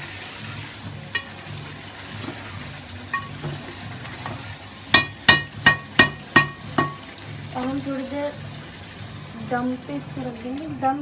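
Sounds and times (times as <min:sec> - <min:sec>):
food sizzling in a metal pot: 0:00.0 - 0:11.0
spoon clanking against pot: 0:03.1 - 0:03.6, 0:04.2 - 0:07.0.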